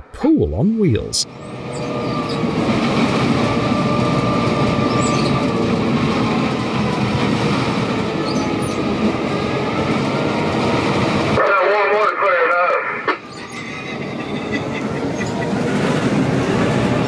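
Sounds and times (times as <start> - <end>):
freight train rumbling: 0.0 - 17.0
faint thin wheel squeal: 13.3 - 15.4.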